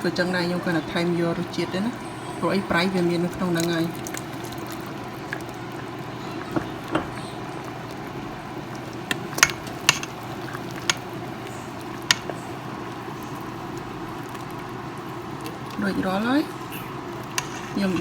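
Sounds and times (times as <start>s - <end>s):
porridge bubbling: 0.0s - 18.0s
spoon clinking against pot: 9.4s - 10.2s.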